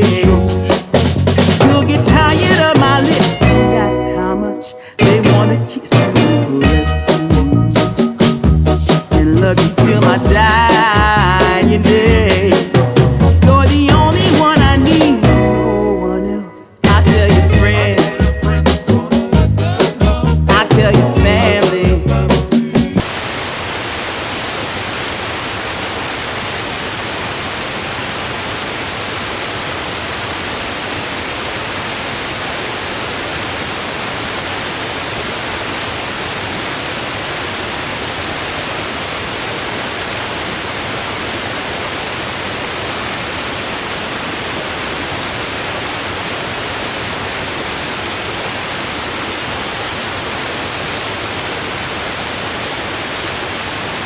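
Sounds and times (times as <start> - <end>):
steady rushing hiss: 0.0 - 1.6, 23.0 - 54.0.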